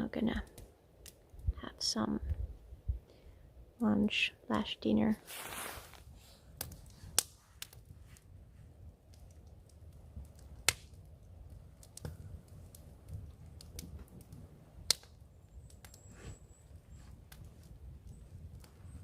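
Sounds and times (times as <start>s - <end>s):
campfire crackling: 0.0s - 19.0s
sharp fire pops: 5.3s - 8.3s, 9.1s - 19.0s.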